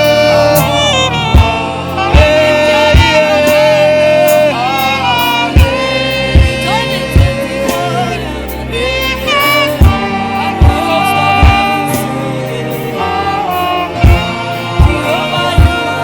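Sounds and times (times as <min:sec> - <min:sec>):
drum hits: 0:00.0 - 0:03.7, 0:09.8 - 0:12.2, 0:14.0 - 0:15.9
bass: 0:00.0 - 0:16.0
keyboard chords: 0:00.0 - 0:16.0
saxophone melody: 0:00.0 - 0:16.0.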